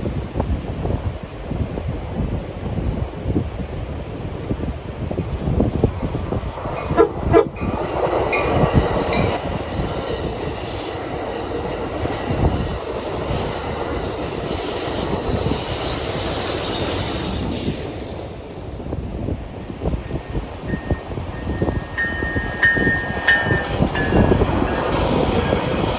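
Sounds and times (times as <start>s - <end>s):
train wheels rumbling on rails: 0.0s - 25.9s
high wheel squeal: 8.8s - 25.9s.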